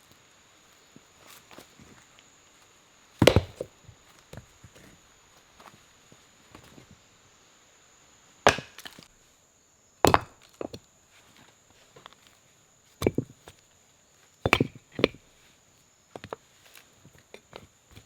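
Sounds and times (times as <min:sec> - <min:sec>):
wood chopping strikes: 0:03.2 - 0:03.7, 0:08.5 - 0:09.1, 0:10.1 - 0:10.8, 0:14.5 - 0:15.2.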